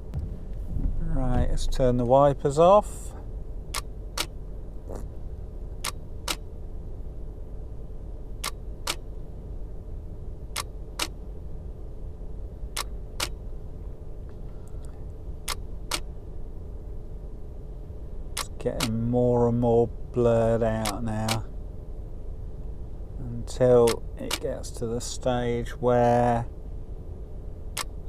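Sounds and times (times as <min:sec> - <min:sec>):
low rumble: 0:00.0 - 0:10.6.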